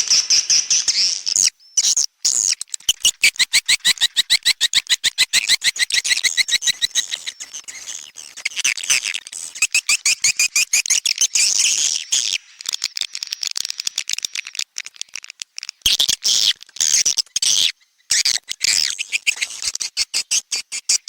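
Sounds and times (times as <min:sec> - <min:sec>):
high-pitched bird twittering chirps: 0:00.0 - 0:08.0.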